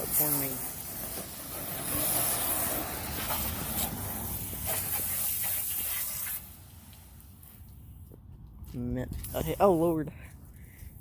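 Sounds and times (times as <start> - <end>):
water spraying onto truck: 0.0 - 7.7.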